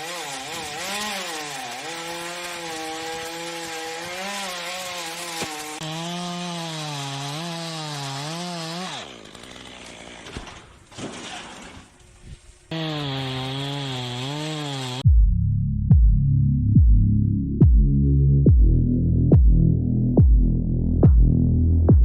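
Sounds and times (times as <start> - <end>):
chainsaw cutting: 0.0 - 12.0, 12.7 - 15.0.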